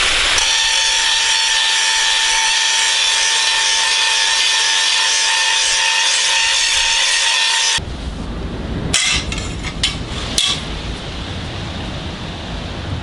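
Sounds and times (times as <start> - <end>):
power grinder on steel: 0.0 - 7.8.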